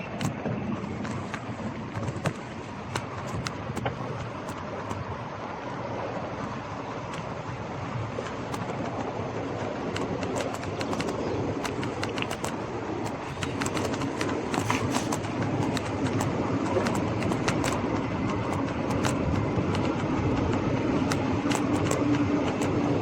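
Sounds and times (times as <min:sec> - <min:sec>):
bike rattling clicks: 0:00.0 - 0:05.2, 0:07.0 - 0:07.5, 0:08.2 - 0:09.0, 0:09.6 - 0:22.9
bike tyres on rough street: 0:06.5 - 0:20.6.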